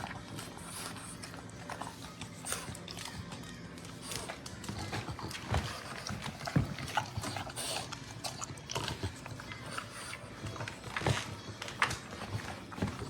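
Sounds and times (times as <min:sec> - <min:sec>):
dog eating from metal bowl: 0:04.0 - 0:13.0.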